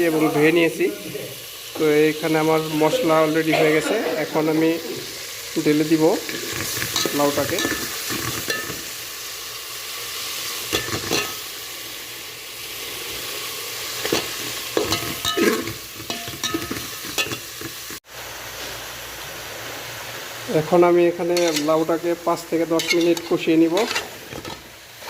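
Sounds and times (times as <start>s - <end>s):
food sizzling in oil: 0.0s - 25.0s
utensil scraping a pot: 21.3s - 21.8s, 22.7s - 24.7s.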